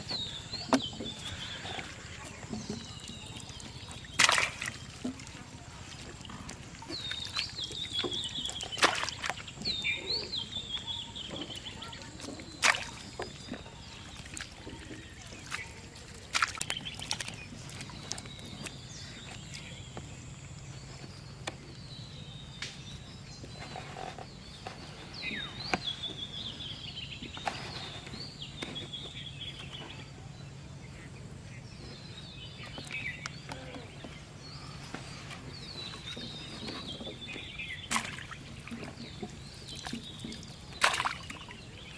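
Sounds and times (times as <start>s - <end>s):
birds chirping and trilling: 0.0s - 41.9s.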